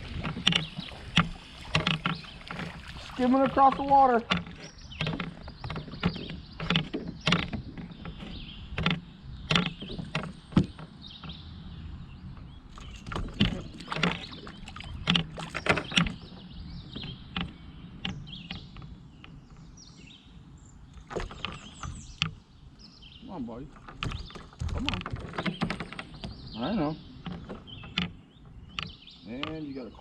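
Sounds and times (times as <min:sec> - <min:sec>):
fish thrashing and splashing: 0:00.0 - 0:07.4.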